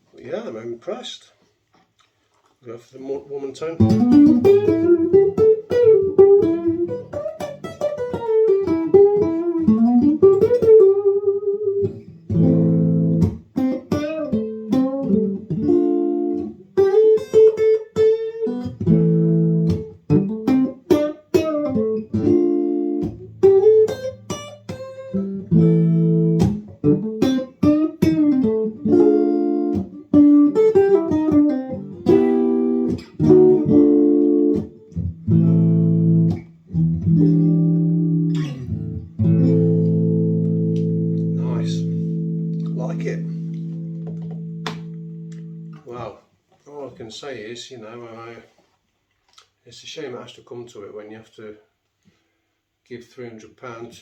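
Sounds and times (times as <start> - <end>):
electric guitar playing: 3.8 - 45.9.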